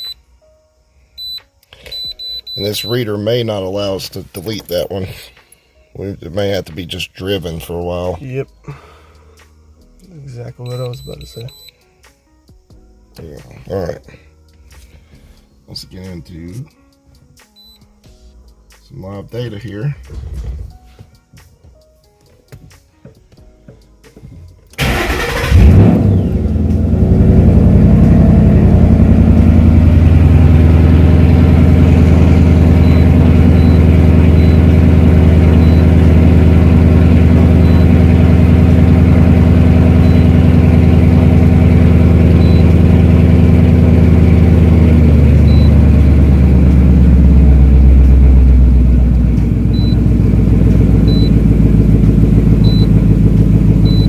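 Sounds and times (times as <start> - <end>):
car engine starting and idling: 24.7 - 54.0.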